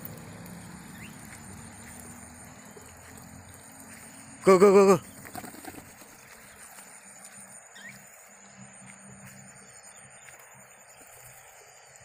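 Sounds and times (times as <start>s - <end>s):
faint bird chirps: 0.6s - 12.0s.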